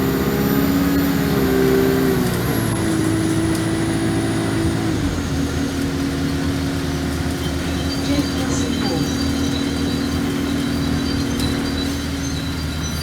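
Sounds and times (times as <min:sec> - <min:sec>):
bus engine running: 0:00.0 - 0:13.0.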